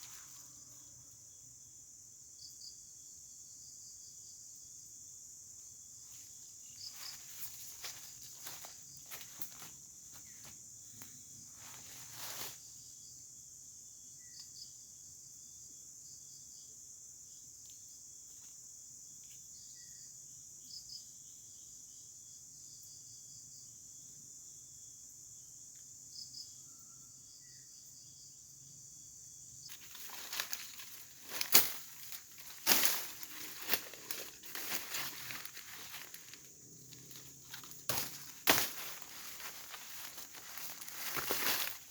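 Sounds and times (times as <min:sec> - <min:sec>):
insects droning: 0:00.0 - 0:41.9
rustling and crinkling handling: 0:06.9 - 0:09.8, 0:29.7 - 0:41.9.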